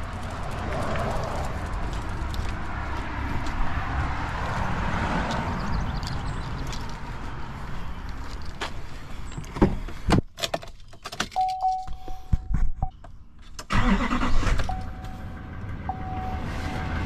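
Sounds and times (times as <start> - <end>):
car warning chime: 11.3 - 12.5, 14.7 - 16.9.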